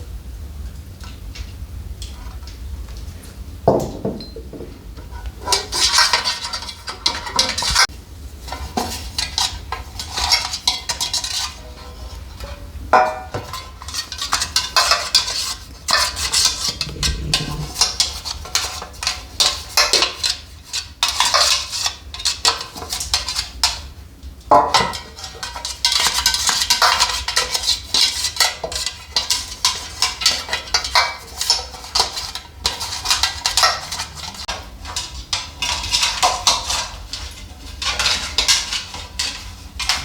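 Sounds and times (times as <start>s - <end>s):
hard objects clattering and scraping: 13.4s - 20.4s, 24.8s - 40.0s.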